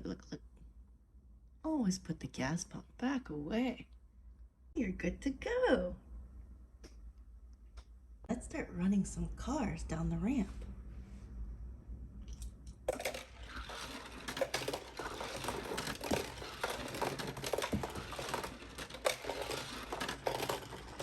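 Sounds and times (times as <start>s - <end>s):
toy cars rattling down plastic ramp: 12.9s - 21.0s.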